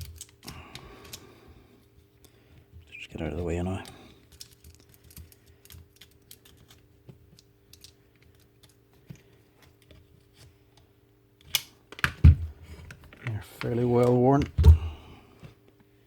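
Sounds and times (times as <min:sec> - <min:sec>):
small parts clicking and tapping: 0:00.0 - 0:01.2, 0:03.7 - 0:10.0.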